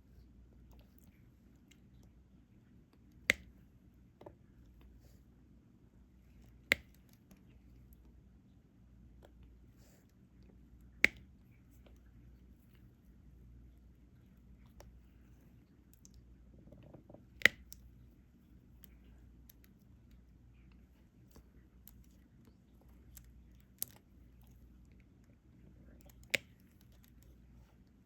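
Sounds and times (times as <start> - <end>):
soft clicks and crackles: 14.2 - 28.0.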